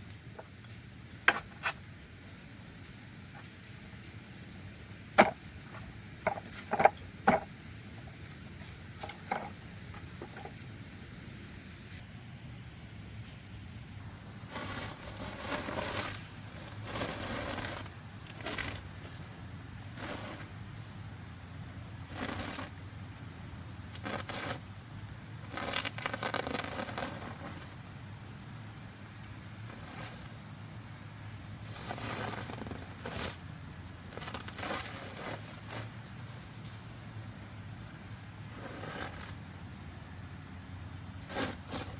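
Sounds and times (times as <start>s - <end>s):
scraping and crunching: 14.2s - 20.9s, 22.0s - 27.8s, 29.6s - 30.5s, 31.6s - 36.7s, 38.4s - 39.6s, 41.1s - 41.9s.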